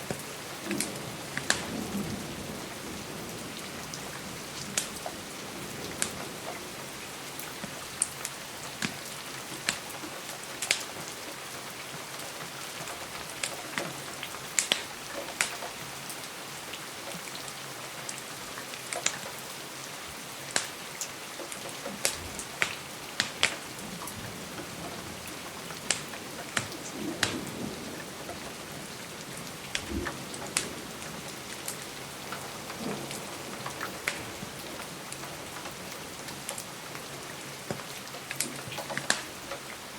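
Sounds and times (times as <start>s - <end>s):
rain on a window: 0.0s - 39.9s
wood fire crackling: 0.1s - 3.7s, 7.5s - 11.0s, 12.9s - 15.5s, 20.5s - 39.9s.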